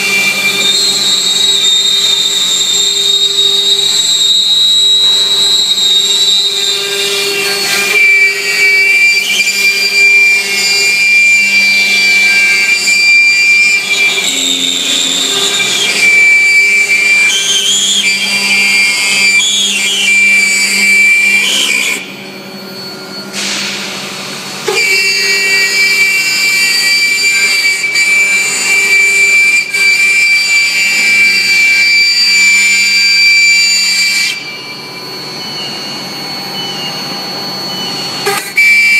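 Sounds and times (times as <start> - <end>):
milling spindle whining: 0.0 - 23.4.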